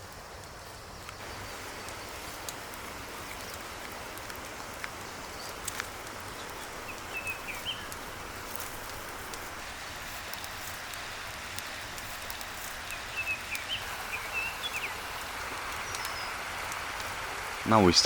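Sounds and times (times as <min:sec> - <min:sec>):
wood fire hissing and crackling: 0:00.0 - 0:18.0
bird chirps: 0:06.4 - 0:08.0.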